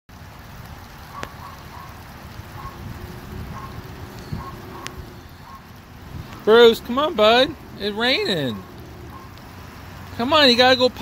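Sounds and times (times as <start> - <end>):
water drops plinking: 1.1 - 11.0
low rumble: 2.6 - 6.5.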